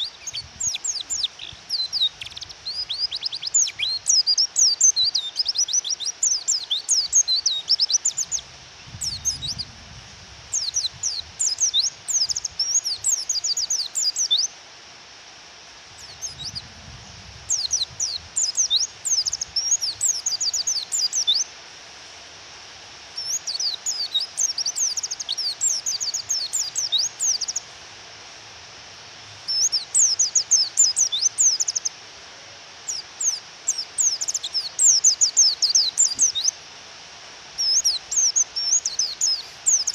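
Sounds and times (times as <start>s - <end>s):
rain hiss: 0.0s - 39.9s
bird high falling chirps: 32.9s - 36.5s, 37.6s - 39.9s.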